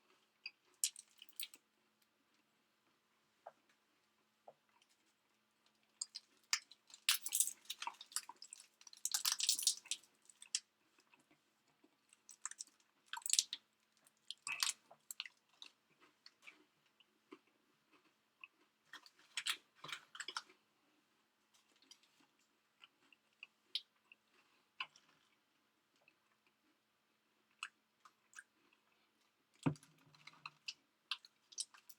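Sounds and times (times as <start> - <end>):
person chewing crunchy food: 5.8 - 13.6, 14.2 - 20.7, 21.6 - 31.9.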